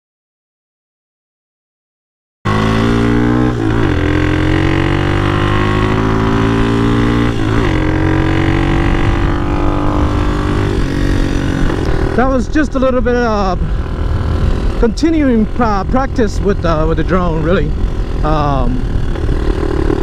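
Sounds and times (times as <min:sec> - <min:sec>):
motorcycle engine accelerating: 0:02.5 - 0:20.0.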